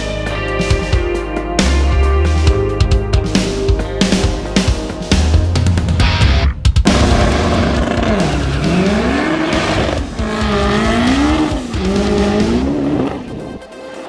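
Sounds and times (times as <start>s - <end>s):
car engine revving: 6.8s - 13.5s
tires squealing: 7.0s - 13.5s.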